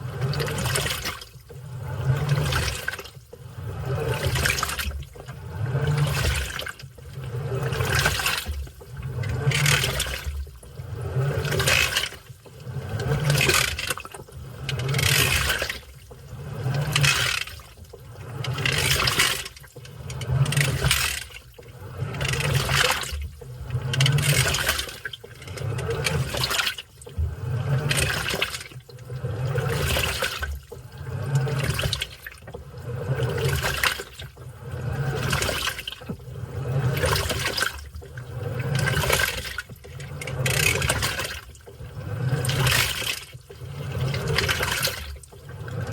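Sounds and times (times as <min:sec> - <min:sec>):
low motor hum: 0:00.0 - 0:28.3, 0:28.9 - 0:45.9
washing machine sloshing: 0:00.0 - 0:45.9.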